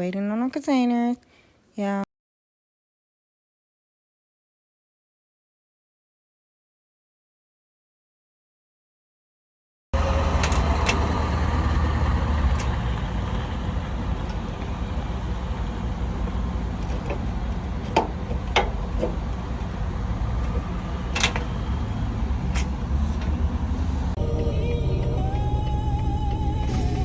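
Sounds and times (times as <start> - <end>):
diesel truck engine running: 10.0 - 27.0
sharp clicks and knocks: 16.8 - 19.3.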